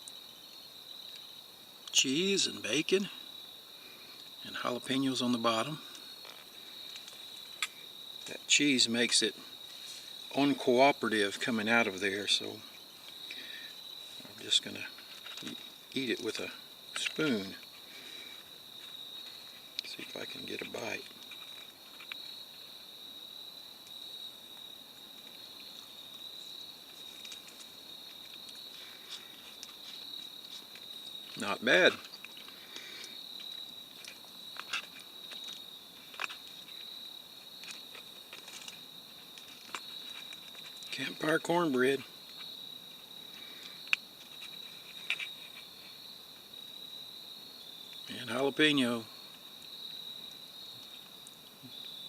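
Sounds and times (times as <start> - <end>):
crickets chirring: 0.0 - 52.0
insects trilling: 0.0 - 52.0.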